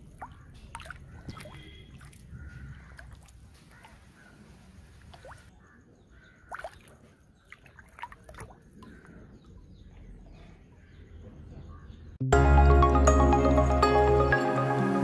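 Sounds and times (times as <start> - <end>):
water dripping and splashing: 0.0 - 5.5, 6.5 - 9.6.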